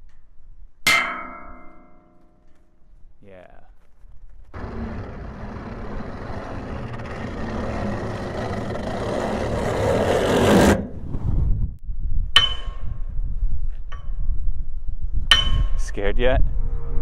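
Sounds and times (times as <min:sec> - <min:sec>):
sharp metallic strike ringing: 0:00.9 - 0:02.4
traffic rushing: 0:04.5 - 0:11.0
low rumble: 0:04.5 - 0:13.6, 0:14.2 - 0:17.0.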